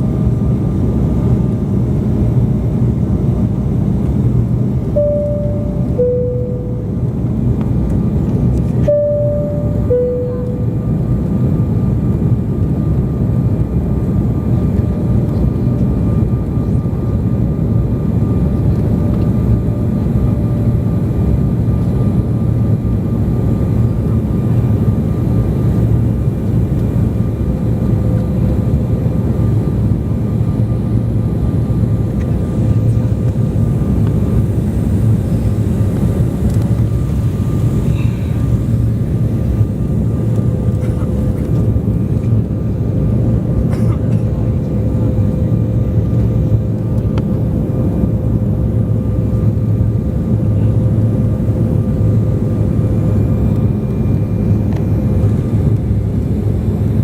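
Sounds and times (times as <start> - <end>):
airliner cabin rumble: 0.0 - 57.0
faint steady whine: 4.8 - 11.9
two-note high-low chime: 5.0 - 7.3, 8.8 - 11.1.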